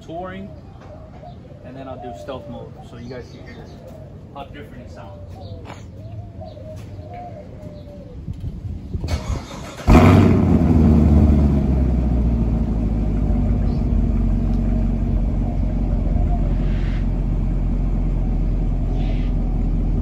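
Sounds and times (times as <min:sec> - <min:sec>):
car engine starting and idling: 0:09.0 - 0:20.0.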